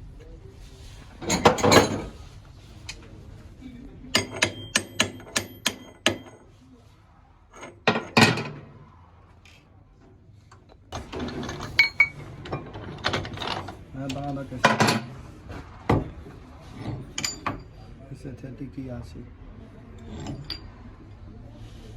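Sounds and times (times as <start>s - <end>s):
metal clatter: 1.2s - 2.2s, 7.5s - 8.8s, 10.5s - 17.9s, 20.0s - 21.2s
ringing metallic taps: 4.2s - 6.4s.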